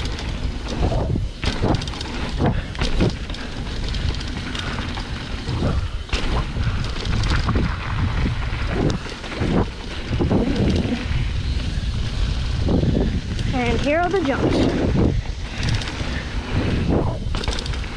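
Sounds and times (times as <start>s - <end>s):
knocks and jolts from rough ground: 0.0s - 11.6s
wind buffeting microphone: 0.0s - 17.9s.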